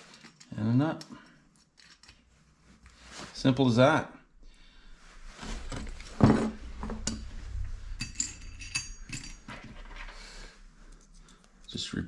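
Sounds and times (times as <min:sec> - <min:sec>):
metal bolts and nuts clinking: 0:00.0 - 0:02.2, 0:07.9 - 0:10.2.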